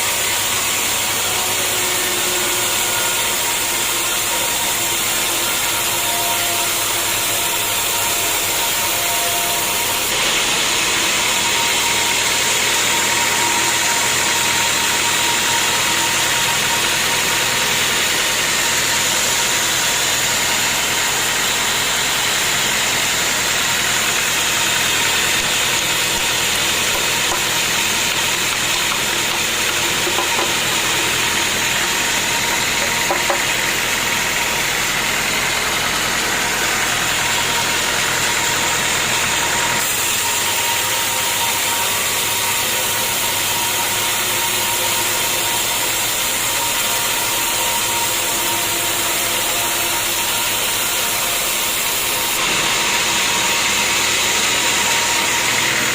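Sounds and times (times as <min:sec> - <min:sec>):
sawmill machinery drone: 0:00.0 - 0:55.9.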